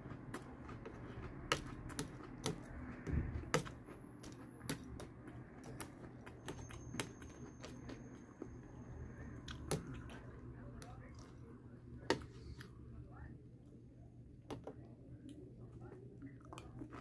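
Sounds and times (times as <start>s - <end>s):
cereal crunching while chewed: 0.0s - 8.6s.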